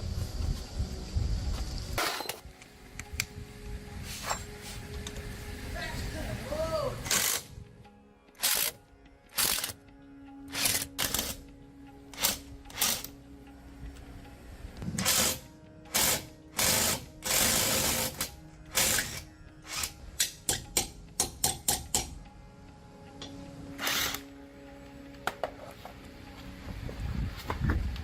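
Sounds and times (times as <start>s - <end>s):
quiet background music: 0.0s - 28.0s
hand tool scraping and clicking: 10.5s - 11.4s.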